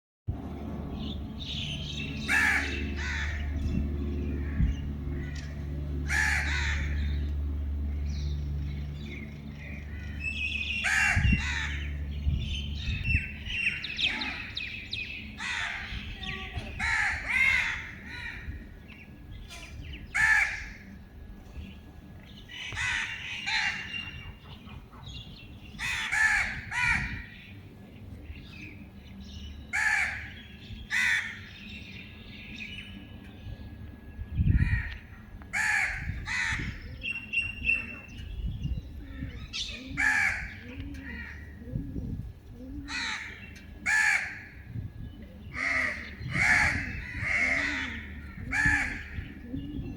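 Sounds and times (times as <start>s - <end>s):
low steady rumble: 0.3s - 49.9s
crows cawing: 2.3s - 3.5s, 4.4s - 7.1s, 15.4s - 16.0s, 16.8s - 18.6s, 20.2s - 20.9s, 22.6s - 24.1s, 25.8s - 27.3s, 29.7s - 30.3s, 30.9s - 31.5s, 34.6s - 36.8s, 40.0s - 41.6s, 42.9s - 44.6s, 45.6s - 49.4s.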